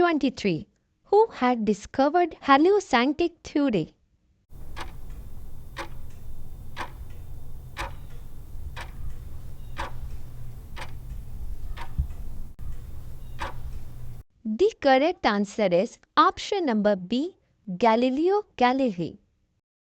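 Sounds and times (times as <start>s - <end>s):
steady low hum: 4.5s - 14.2s
timer ticking: 4.5s - 14.2s.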